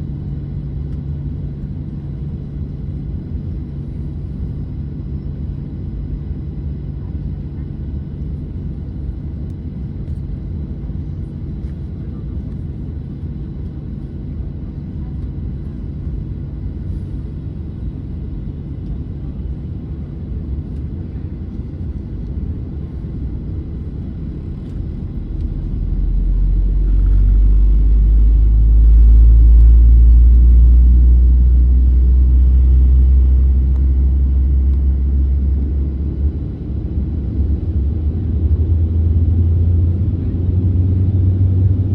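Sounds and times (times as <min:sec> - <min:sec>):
aircraft engine hum: 0:00.0 - 0:41.9
loud deep rumble: 0:13.4 - 0:41.9.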